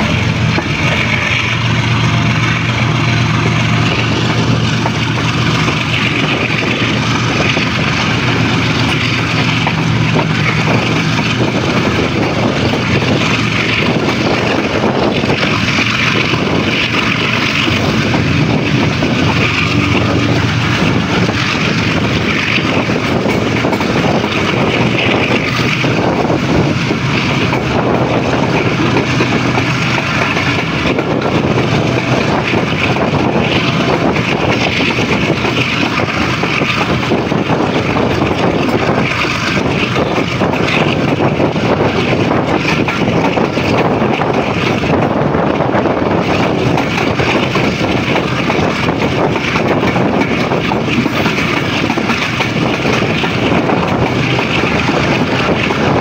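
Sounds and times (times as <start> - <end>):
train wheels on rails: 0.0 - 56.0
wind: 0.0 - 56.0.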